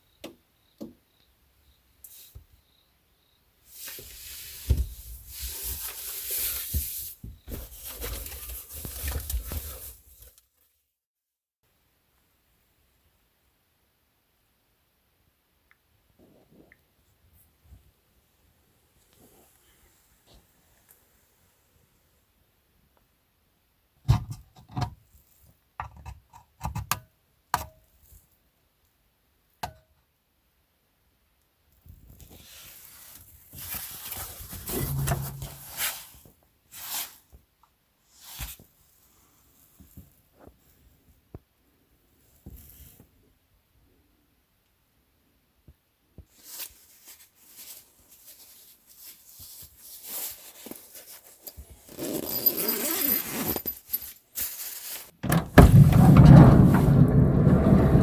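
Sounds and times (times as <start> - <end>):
crinkling and rustling handling noise: 4.8 - 10.5.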